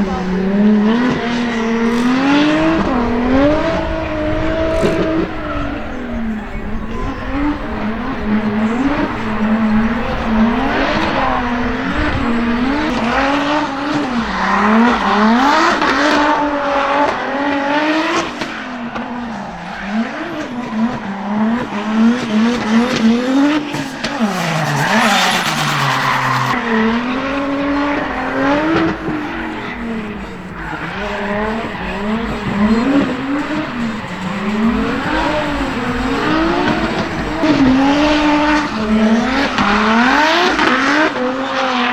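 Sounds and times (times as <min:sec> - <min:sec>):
car engine revving: 0:00.0 - 0:41.9
tyres screeching: 0:17.8 - 0:41.3.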